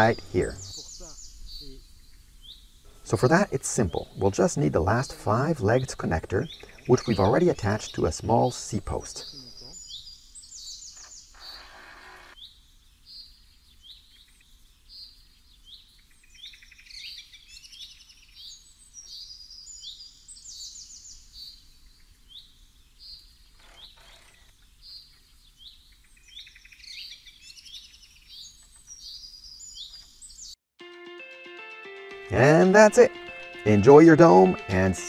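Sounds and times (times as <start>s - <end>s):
birds chirping and trilling: 0.0s - 30.6s, 32.4s - 35.0s.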